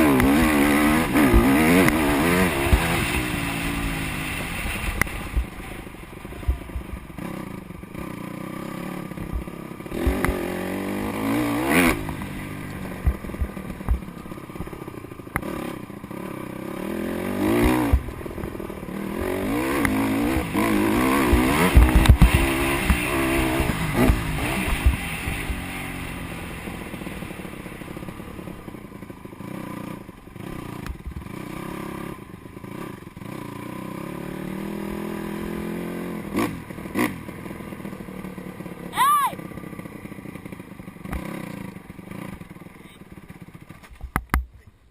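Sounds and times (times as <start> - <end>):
motocross bike revving: 0.0 - 43.9.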